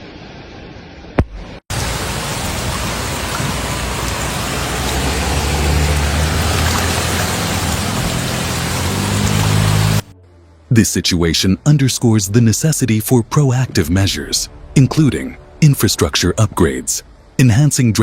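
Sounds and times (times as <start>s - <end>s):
heavy rain hiss: 1.7s - 10.0s.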